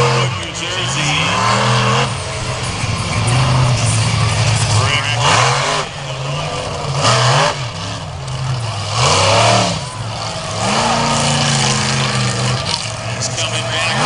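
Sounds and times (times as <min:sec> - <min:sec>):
monster truck engine revving: 0:00.0 - 0:14.0.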